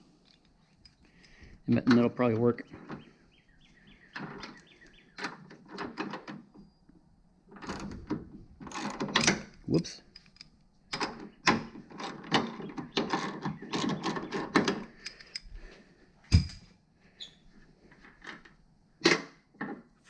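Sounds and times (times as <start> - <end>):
metal parts and tools clinking: 7.6 - 15.6.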